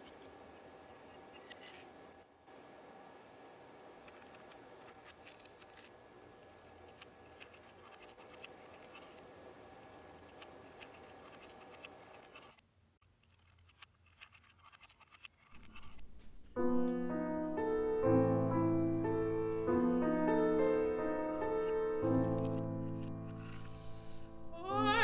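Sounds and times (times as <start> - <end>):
small clicks and scratchy ticks: 0.0 - 1.9, 4.0 - 16.0
background hum: 0.0 - 25.0.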